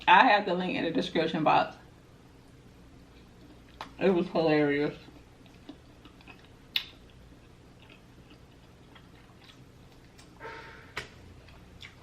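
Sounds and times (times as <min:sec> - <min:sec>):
chewing and food handling clicks: 0:03.4 - 0:04.0, 0:05.1 - 0:10.4, 0:11.4 - 0:12.0.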